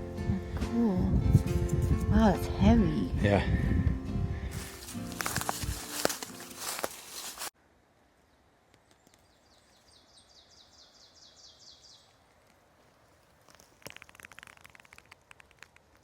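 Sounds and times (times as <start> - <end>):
sharp clicks: 13.5 - 16.0.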